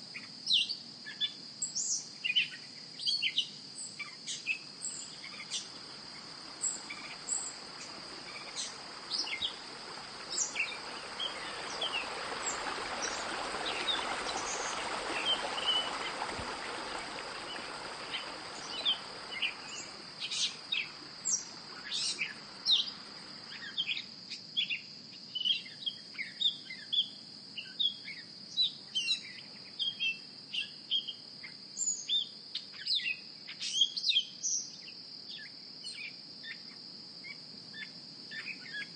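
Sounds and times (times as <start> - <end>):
birds chirping: 4.9 - 23.8
broad hiss: 5.0 - 23.6.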